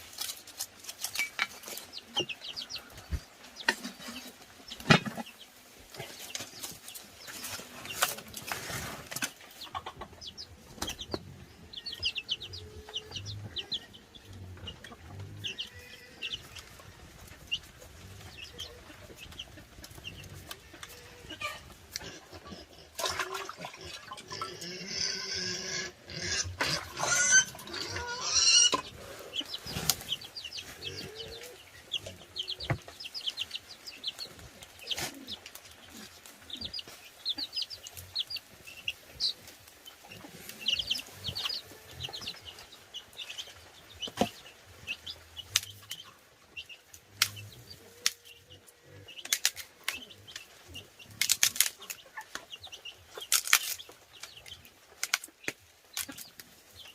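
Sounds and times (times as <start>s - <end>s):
chickens clucking and calling: 0.0s - 56.9s.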